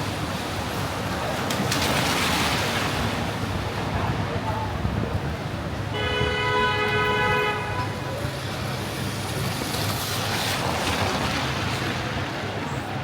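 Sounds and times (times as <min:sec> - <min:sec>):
city traffic rumble: 0:00.0 - 0:13.0
vehicle horn: 0:05.9 - 0:07.9.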